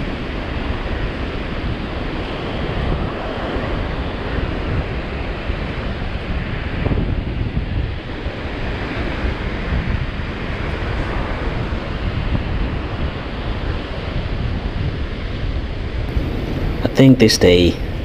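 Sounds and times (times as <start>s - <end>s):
wind buffeting microphone: 0.0s - 18.0s
ocean surf washing onto beach: 16.1s - 18.0s.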